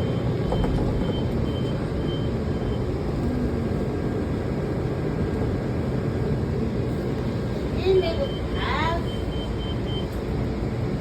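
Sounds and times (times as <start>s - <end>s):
railcar rumbling: 0.0s - 11.0s
faint high beep: 8.1s - 10.1s.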